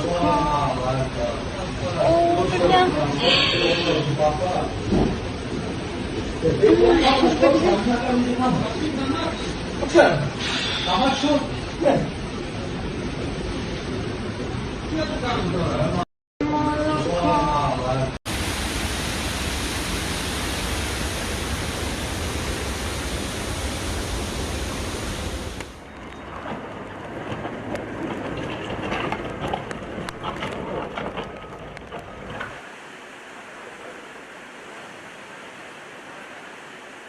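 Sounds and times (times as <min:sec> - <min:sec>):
floodwater rushing: 0:18.3 - 0:26.2, 0:29.6 - 0:37.0.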